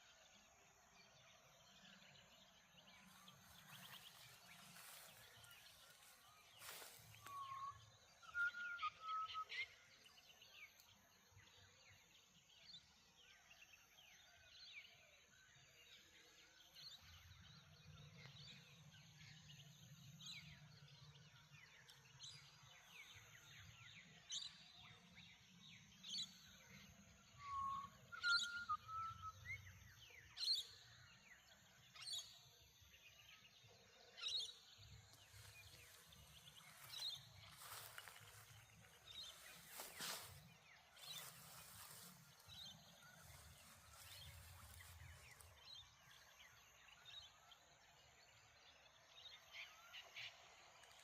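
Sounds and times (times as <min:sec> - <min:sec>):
birds twittering: 0:34.2 - 0:47.9.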